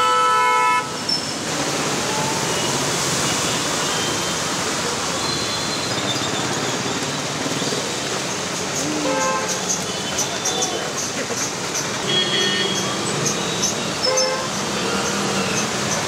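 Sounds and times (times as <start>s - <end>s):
heavy rain on flooded road: 0.0s - 16.0s
vehicle horn honk: 12.0s - 12.8s, 14.1s - 15.1s.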